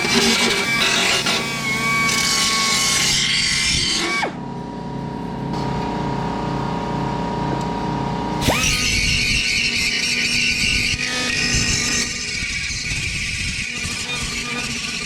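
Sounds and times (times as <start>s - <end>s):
angle grinder running: 8.4s - 15.0s.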